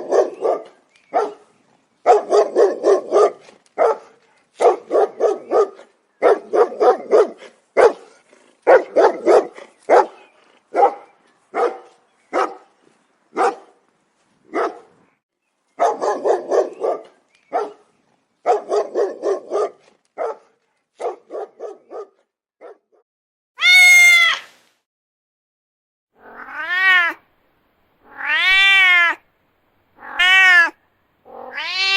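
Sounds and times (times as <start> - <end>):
dog barking: 0.0 - 12.7, 13.4 - 13.8, 14.5 - 15.0, 15.8 - 23.0.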